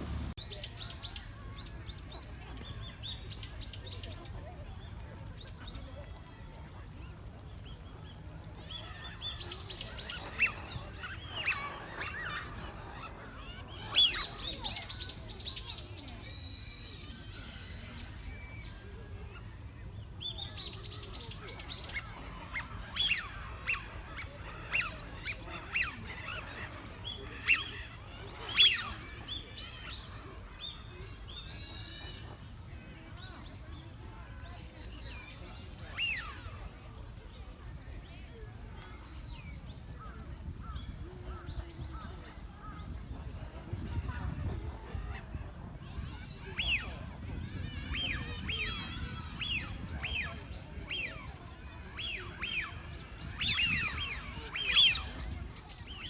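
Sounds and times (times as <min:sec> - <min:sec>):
birds chirping: 0:00.0 - 0:00.4
steady low rumble: 0:00.0 - 0:00.4.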